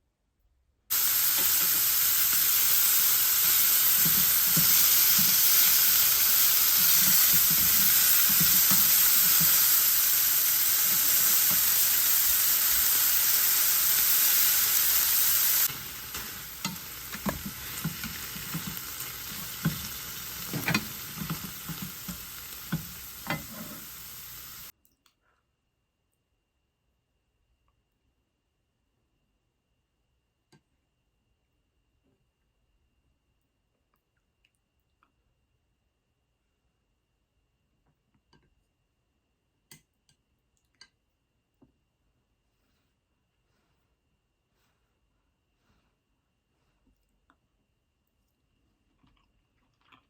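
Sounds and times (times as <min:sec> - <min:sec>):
food sizzling in a pan: 0:00.9 - 0:24.7.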